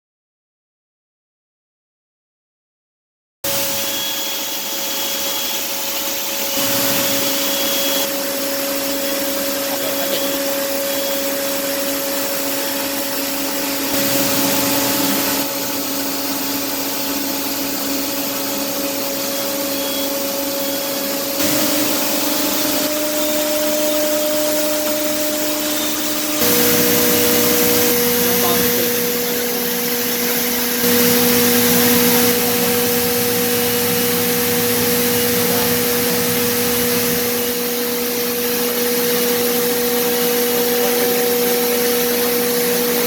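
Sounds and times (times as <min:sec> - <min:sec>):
milling machine spindle whine: 0:03.5 - 0:43.0.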